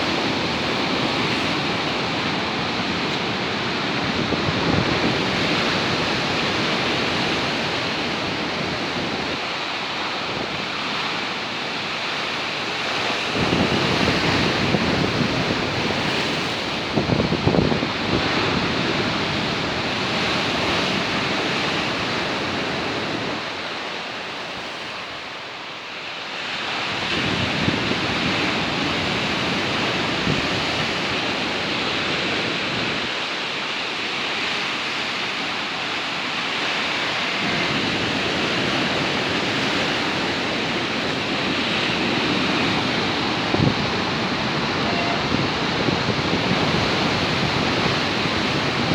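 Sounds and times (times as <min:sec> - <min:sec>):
wind buffeting microphone: 0:00.0 - 0:23.6, 0:36.6 - 0:48.9
surf breaking on shore: 0:00.0 - 0:25.3, 0:26.5 - 0:48.9.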